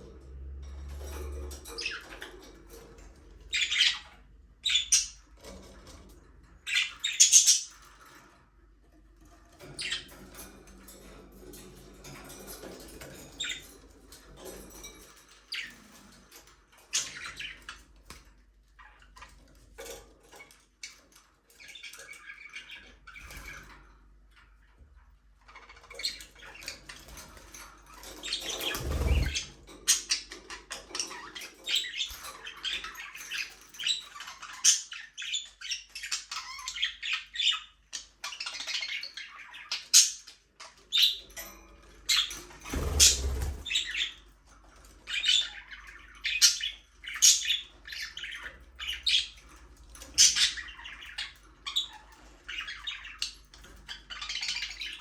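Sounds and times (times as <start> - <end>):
budgerigars chirping: 3.5 - 5.2, 6.7 - 7.8, 28.3 - 30.3, 42.1 - 44.2.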